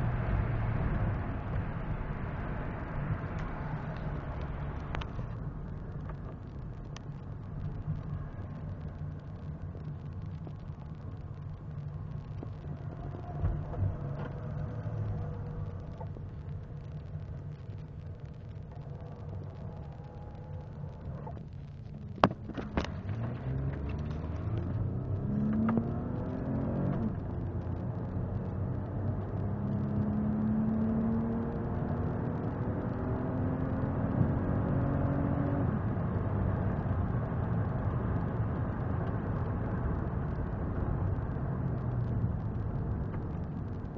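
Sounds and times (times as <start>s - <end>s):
car engine accelerating: 0.0s - 43.9s.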